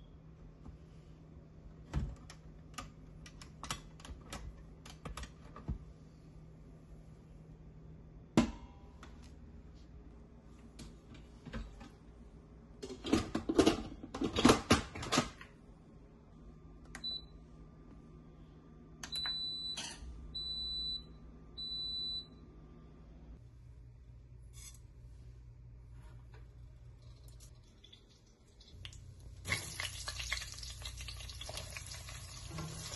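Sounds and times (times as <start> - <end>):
kitchen appliance beeping: 19.0 - 22.4.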